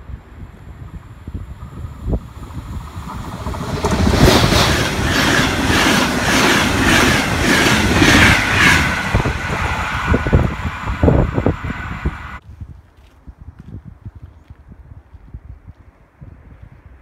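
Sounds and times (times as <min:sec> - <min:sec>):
passenger train passing: 0:00.0 - 0:12.4
train wheel clacks: 0:03.0 - 0:09.6.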